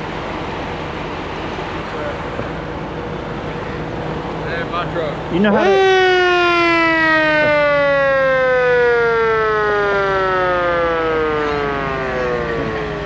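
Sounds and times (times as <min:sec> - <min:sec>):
mechanical siren winding down: 0:05.5 - 0:13.0.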